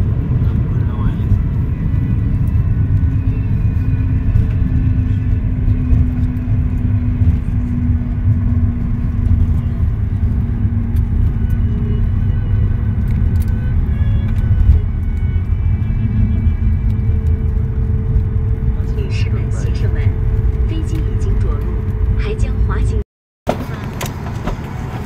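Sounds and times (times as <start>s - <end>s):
steady hum: 0.0s - 23.0s
vehicle rumble from inside: 0.0s - 25.0s.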